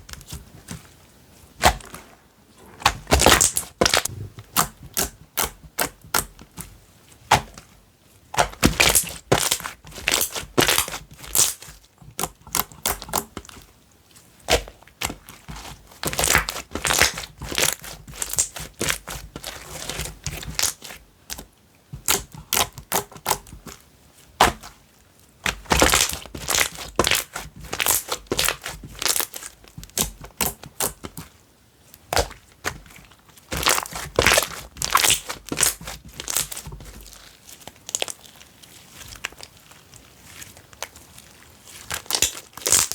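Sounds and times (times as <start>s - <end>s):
slime squished by hand: 25.4s - 31.3s, 32.1s - 42.9s.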